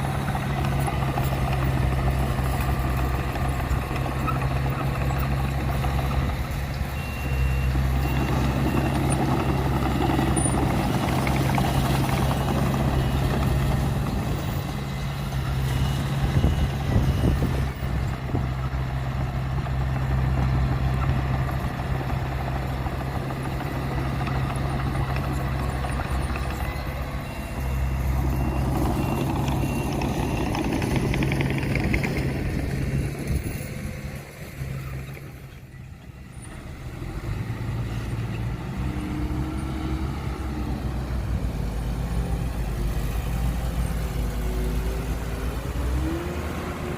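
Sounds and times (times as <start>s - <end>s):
heavy diesel engines rumbling: 0.0s - 46.9s
back-up alarm beeping: 26.3s - 32.2s.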